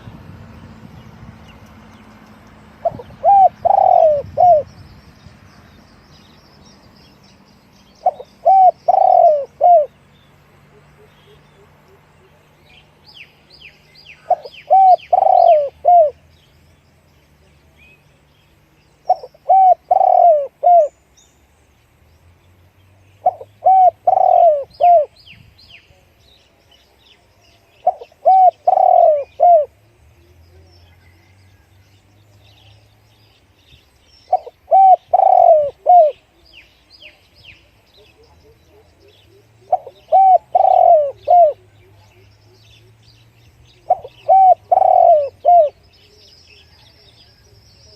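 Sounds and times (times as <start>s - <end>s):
small birds chirping faintly: 0.0s - 47.9s
dove cooing: 2.8s - 4.7s, 8.0s - 10.0s, 14.2s - 16.2s, 19.1s - 20.9s, 23.2s - 25.2s, 27.8s - 29.8s, 34.3s - 36.4s, 38.0s - 43.0s, 43.8s - 46.2s.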